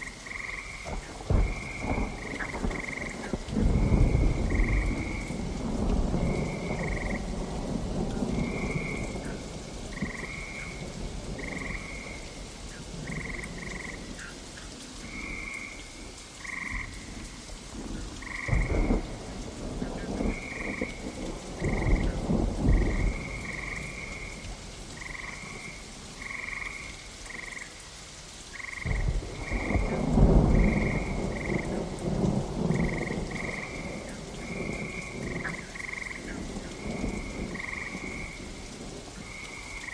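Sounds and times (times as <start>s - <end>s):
frogs croaking: 0.0s - 39.9s
steady rain: 0.0s - 39.9s
thunder rolling: 0.9s - 12.2s, 18.2s - 24.4s, 28.8s - 38.4s.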